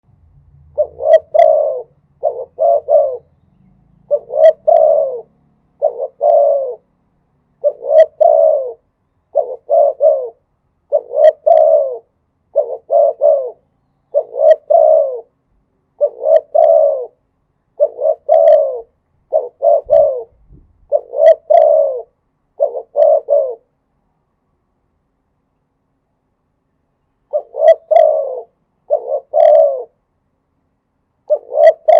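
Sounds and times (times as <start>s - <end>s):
dove cooing: 0.7s - 6.9s, 7.6s - 17.2s, 17.8s - 23.7s, 27.3s - 30.0s, 31.3s - 31.9s.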